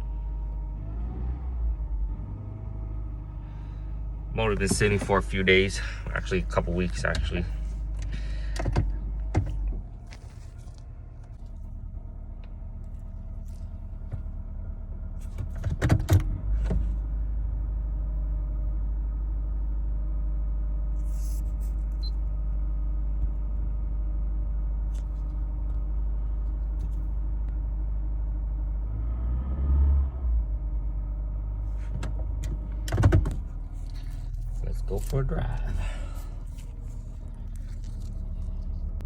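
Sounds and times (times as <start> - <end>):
car engine idling rough: 0.0 - 29.2, 30.4 - 39.0
engine knocks: 4.4 - 10.0, 31.6 - 39.0.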